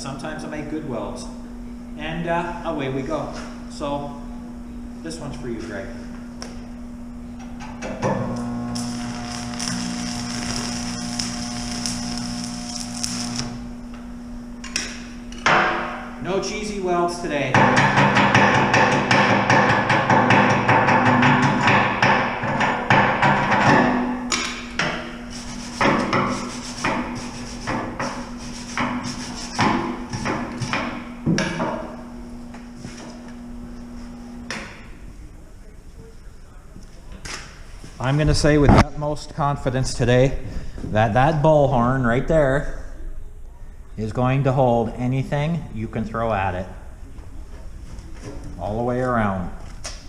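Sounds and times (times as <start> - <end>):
steady low hum: 0.0 - 50.0
welding arc crackling and hissing: 8.3 - 14.1, 25.1 - 31.2.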